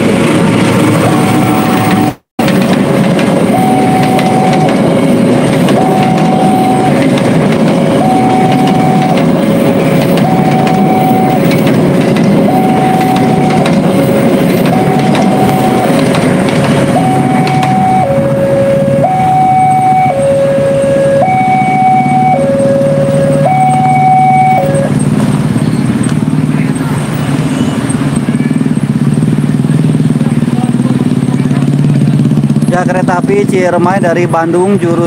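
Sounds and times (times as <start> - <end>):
train wheels rumbling: 0.0 - 35.0
level-crossing warning alarm: 0.8 - 25.1
clacks over rail joints: 1.8 - 20.4.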